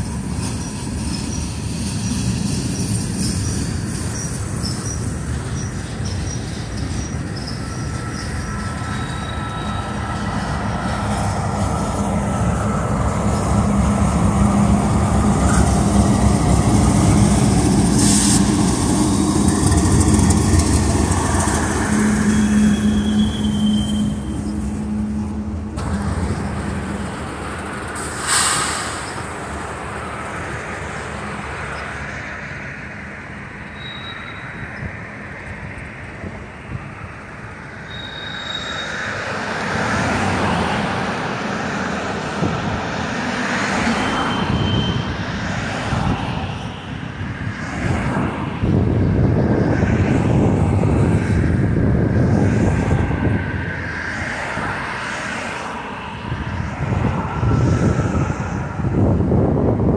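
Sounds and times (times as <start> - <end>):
diesel locomotive engines droning: 0.0 - 59.9
freight cars rumbling over rails: 0.0 - 59.9
wheel squeal: 0.4 - 10.7, 18.0 - 25.2, 33.6 - 34.8, 37.8 - 39.4, 43.8 - 45.3
hissing burst: 28.0 - 29.3.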